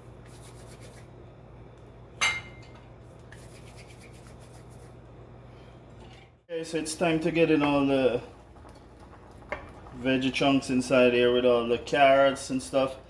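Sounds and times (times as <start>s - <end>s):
cookware clinking: 2.2s - 2.9s.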